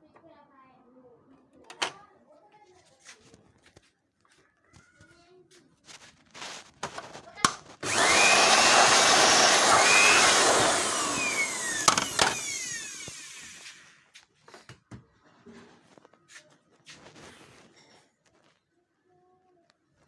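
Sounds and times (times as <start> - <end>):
electric blower motor: 7.8 - 13.8.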